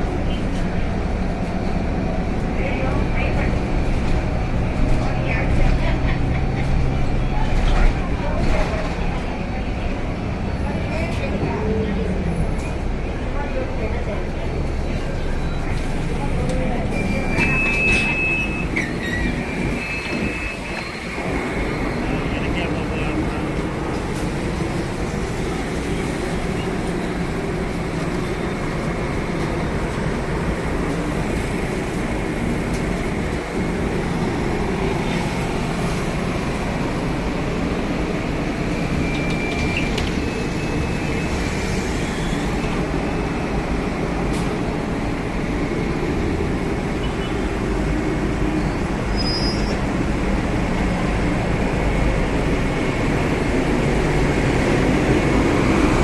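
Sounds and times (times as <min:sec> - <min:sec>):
bus engine rumble: 0:00.0 - 0:56.0
road noise: 0:00.0 - 0:56.0
faint squeaks or rattles: 0:17.0 - 0:21.2.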